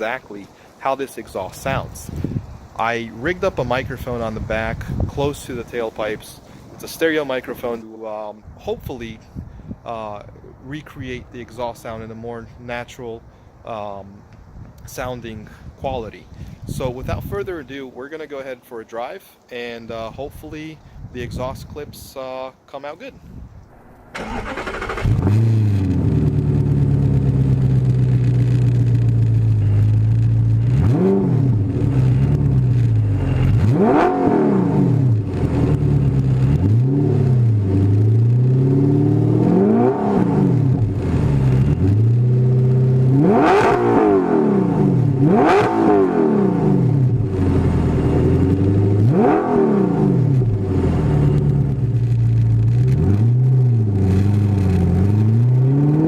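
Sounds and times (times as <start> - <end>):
car engine revving: 23.8 - 56.0.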